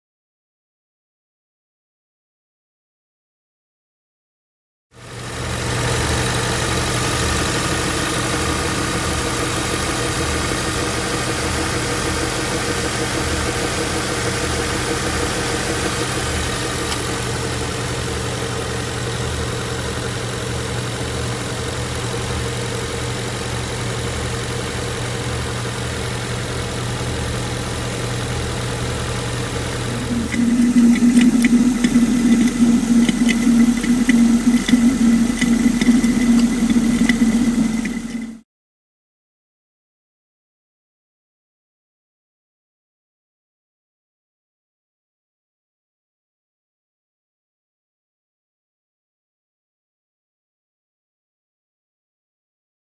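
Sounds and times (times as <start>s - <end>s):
car engine idling: 5.3s - 38.4s
rattling ticks: 29.9s - 38.4s.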